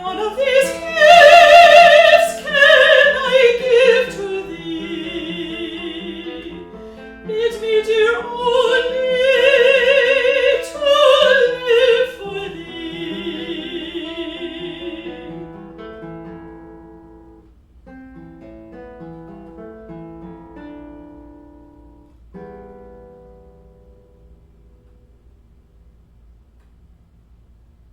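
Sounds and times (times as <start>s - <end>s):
operatic singer with vibrato: 0.0s - 15.5s
plucked acoustic guitar: 0.0s - 26.0s.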